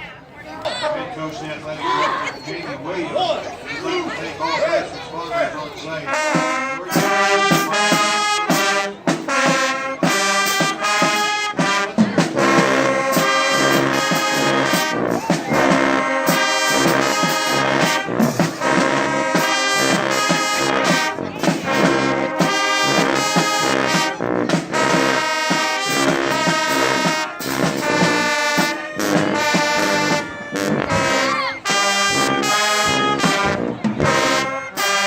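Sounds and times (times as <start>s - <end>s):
brass band playing: 5.9s - 35.0s
drum hits: 15.2s - 31.5s.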